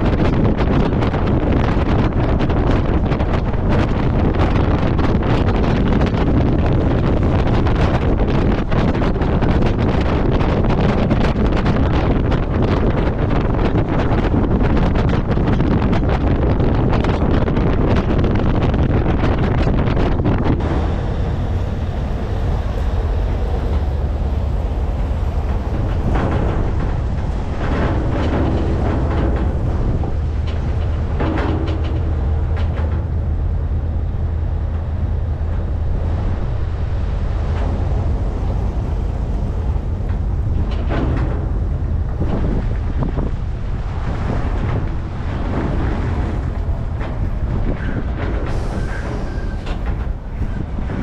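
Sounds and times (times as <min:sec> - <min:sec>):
road and wind noise: 0:00.0 - 0:51.0
truck diesel engine humming: 0:20.6 - 0:31.2.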